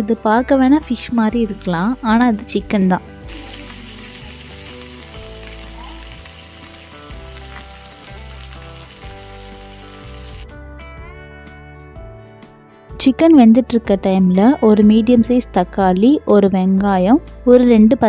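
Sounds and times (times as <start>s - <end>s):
light background music: 0.0s - 18.0s
chicken sizzling in oil: 3.2s - 10.4s.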